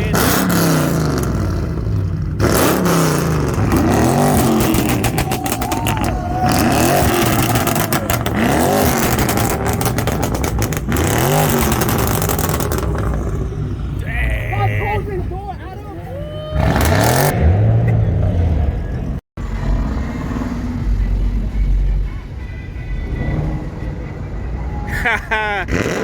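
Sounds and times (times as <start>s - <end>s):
car engine revving: 0.0s - 15.3s, 16.5s - 21.9s, 25.6s - 26.0s
sharp cracks: 2.7s - 13.4s.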